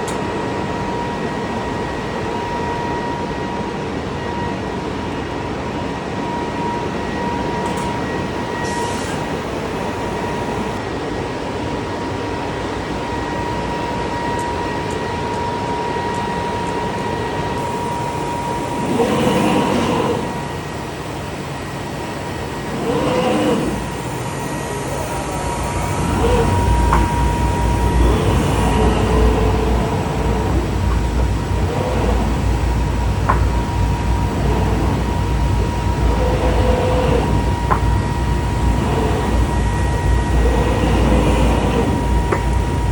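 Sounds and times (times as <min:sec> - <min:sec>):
machine high whine: 0:00.0 - 0:42.9
low rumble: 0:22.4 - 0:42.9.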